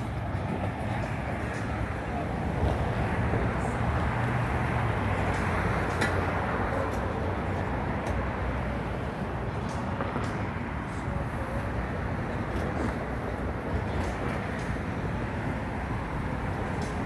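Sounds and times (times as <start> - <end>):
passing traffic: 0.0 - 17.0.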